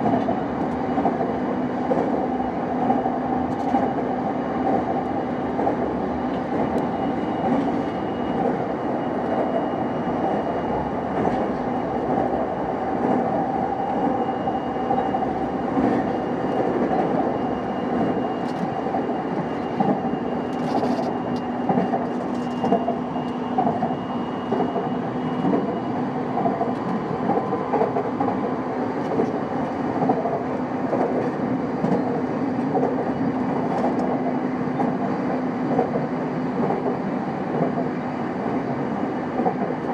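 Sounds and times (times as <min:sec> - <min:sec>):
train wheels rumbling on rails: 0:00.0 - 0:39.9
faint rail-joint clicks: 0:02.8 - 0:08.6, 0:17.9 - 0:25.8, 0:26.4 - 0:38.0, 0:39.3 - 0:39.9.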